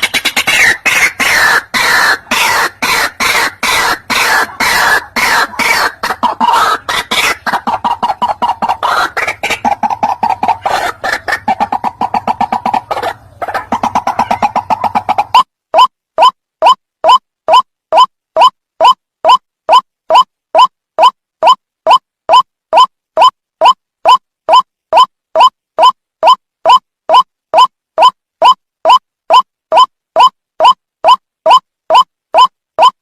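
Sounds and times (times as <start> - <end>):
waterhens calling: 0.0 - 15.5.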